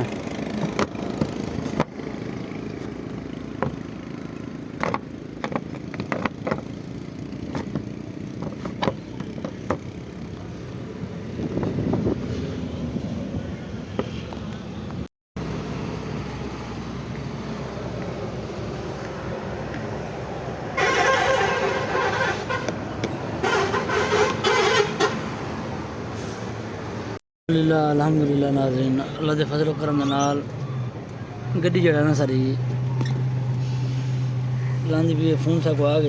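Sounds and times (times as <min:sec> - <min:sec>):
vehicle rumble and road noise: 0:00.0 - 0:36.0
sharp clicks and knocks: 0:04.8 - 0:06.7.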